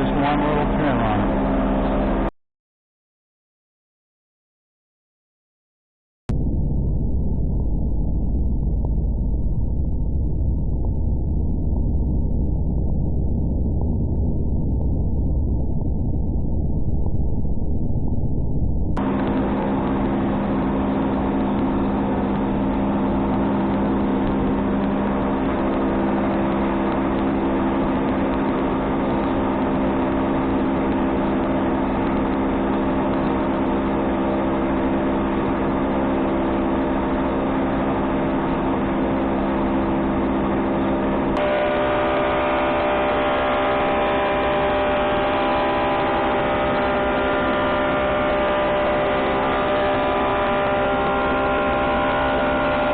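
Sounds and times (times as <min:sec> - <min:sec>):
thickness planer humming: 0:41.3 - 0:52.9.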